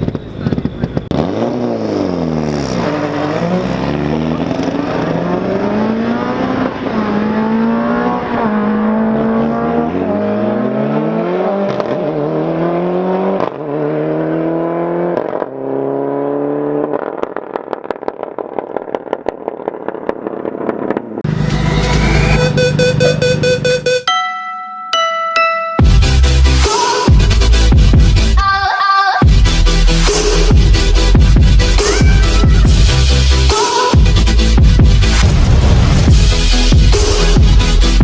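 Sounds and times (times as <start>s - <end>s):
rally car engine accelerating: 0.0s - 24.0s.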